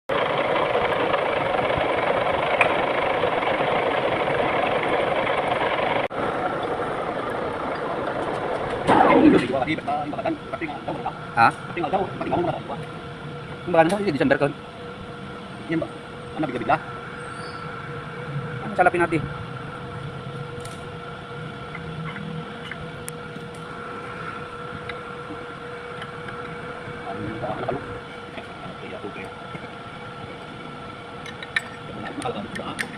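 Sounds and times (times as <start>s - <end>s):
lathe running: 0.1s - 13.5s
lathe humming and whining: 0.1s - 32.9s.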